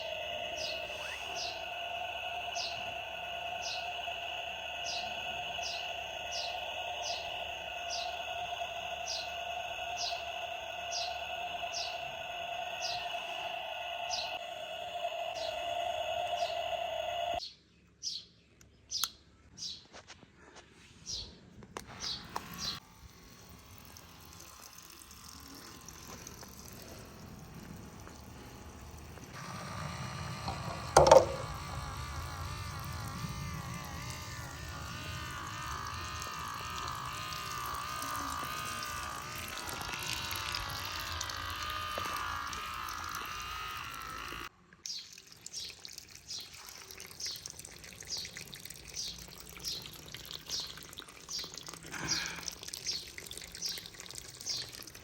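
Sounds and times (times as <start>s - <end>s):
faint small motor hum: 0.0s - 17.4s, 21.8s - 44.6s, 45.2s - 55.0s
water pouring: 23.1s - 29.4s, 30.4s - 55.0s.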